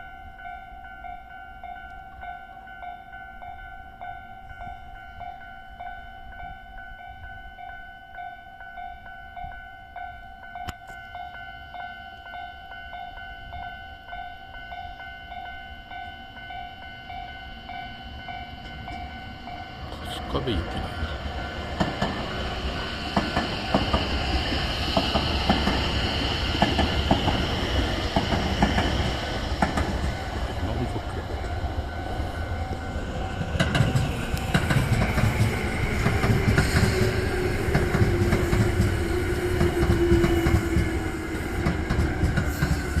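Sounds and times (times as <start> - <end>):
train wheels clacking: 18.4 - 43.0.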